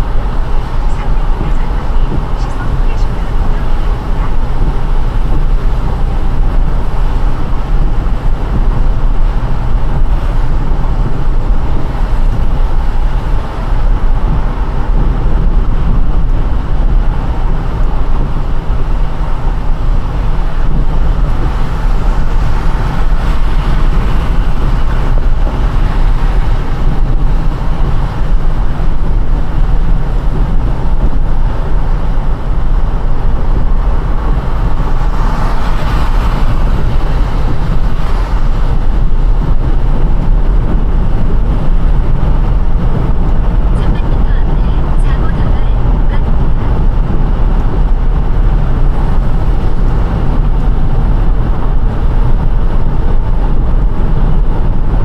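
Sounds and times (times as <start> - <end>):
car engine and road rumble: 0.0 - 55.0
tyres hissing on wet road: 19.0 - 29.6, 33.2 - 42.5.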